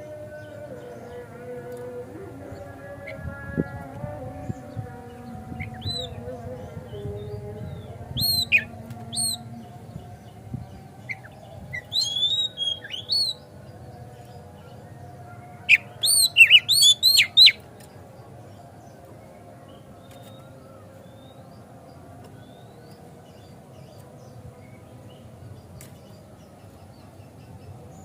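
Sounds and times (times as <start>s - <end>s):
bird whistled song: 5.6s - 6.2s, 7.7s - 9.5s, 11.0s - 13.4s, 15.7s - 17.6s.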